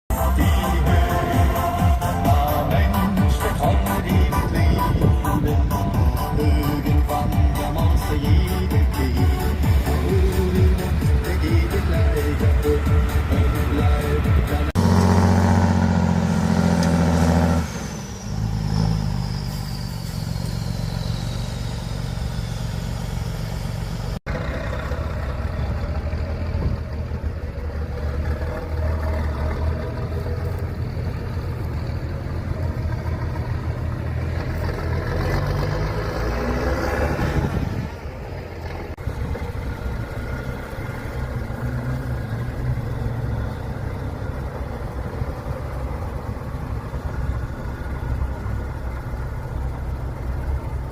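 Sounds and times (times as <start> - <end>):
music: 0.1 - 14.8
truck engines revving under load: 0.1 - 50.9.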